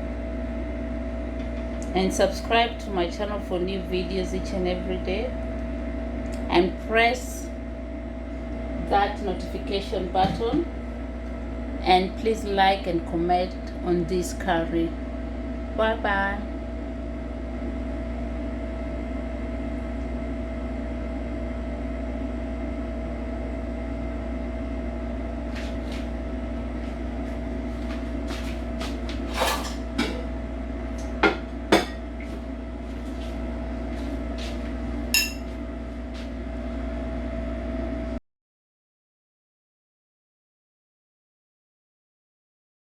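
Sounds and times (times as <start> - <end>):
steady hum: 0.0 - 38.2
dishes and utensils clinking: 35.2 - 35.5.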